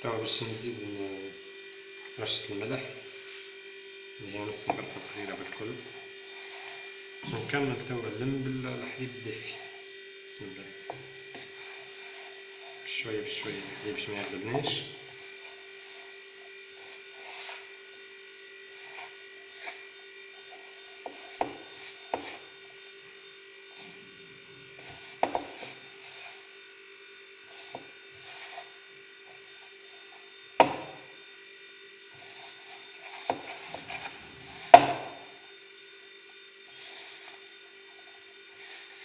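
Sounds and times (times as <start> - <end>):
steady hum: 0.0 - 39.0
dough rubbing in bowl: 4.2 - 22.9, 23.6 - 26.7, 27.4 - 31.2, 32.1 - 35.6.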